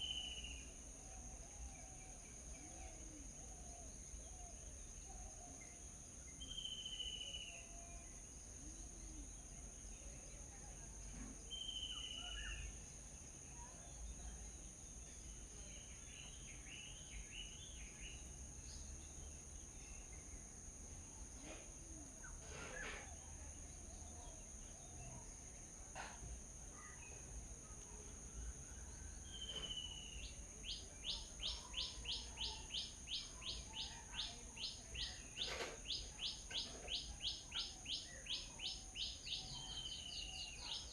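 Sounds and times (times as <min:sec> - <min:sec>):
small birds calling: 0:29.4 - 0:40.9.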